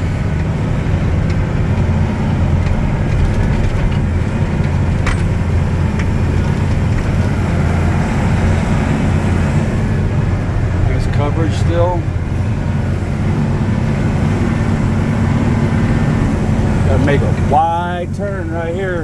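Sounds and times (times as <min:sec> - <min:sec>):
truck engine droning: 0:00.0 - 0:19.0.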